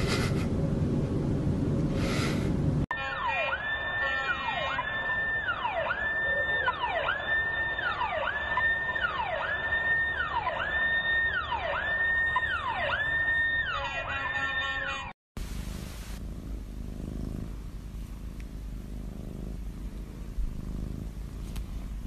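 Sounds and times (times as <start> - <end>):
siren wailing: 2.9 - 15.1.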